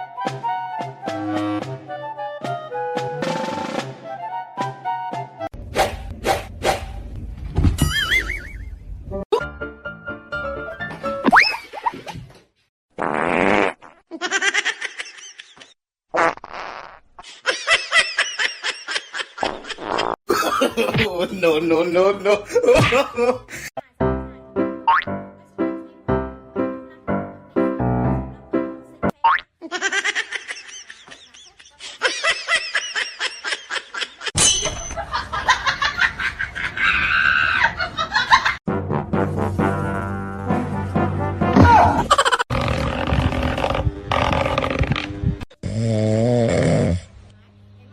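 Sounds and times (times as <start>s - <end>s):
buzzing fart-like noise: 13.0s - 14.0s, 16.1s - 17.1s, 19.4s - 20.2s, 42.4s - 47.2s
person laughing: 17.4s - 23.8s, 29.6s - 38.6s, 41.8s - 42.5s.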